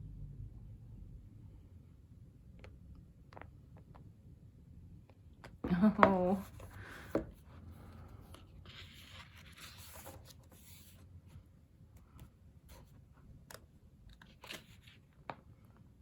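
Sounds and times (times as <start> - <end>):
pages rustling and turning: 6.4 - 11.1, 12.2 - 15.6.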